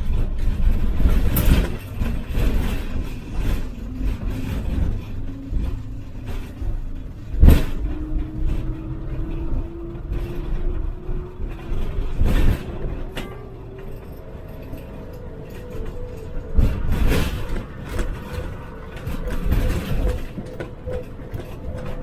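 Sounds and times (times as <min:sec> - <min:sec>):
trailer jolting over bumps: 0:00.0 - 0:13.2
road rumble and rattling: 0:00.0 - 0:22.0.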